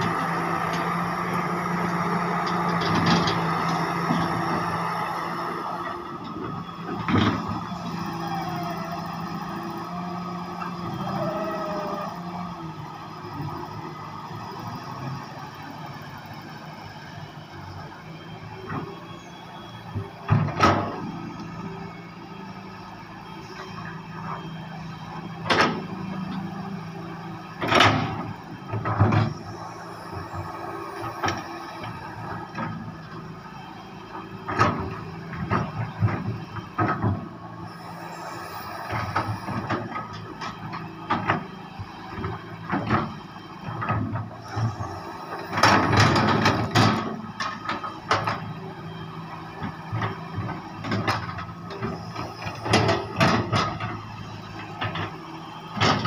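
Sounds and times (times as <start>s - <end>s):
excavator diesel engine running: 0.0s - 56.0s
metallic clanks and squeals: 10.6s - 12.4s, 34.4s - 56.0s.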